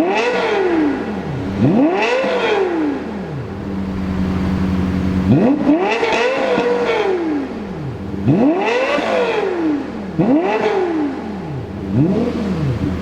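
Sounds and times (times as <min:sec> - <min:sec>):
car engine idling: 0:00.0 - 0:13.0
car engine revving: 0:00.0 - 0:13.0.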